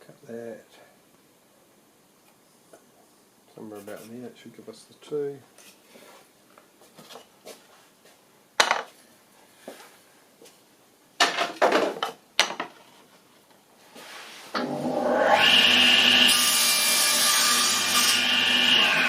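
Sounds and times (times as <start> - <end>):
power tool running: 14.6 - 16.4.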